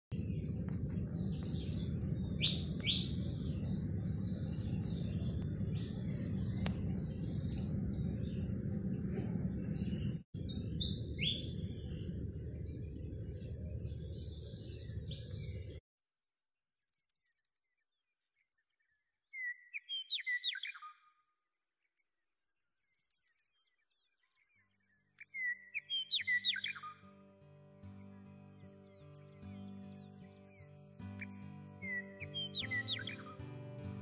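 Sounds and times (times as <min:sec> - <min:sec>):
birds chirping: 0:00.1 - 0:15.8
low rumble: 0:00.2 - 0:10.2
high insect drone: 0:00.2 - 0:15.6.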